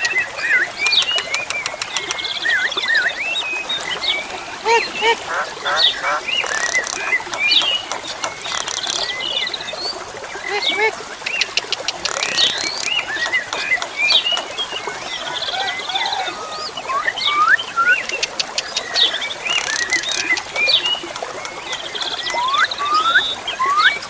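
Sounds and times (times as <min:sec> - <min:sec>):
starling singing: 0:02.5 - 0:09.2, 0:10.4 - 0:11.0.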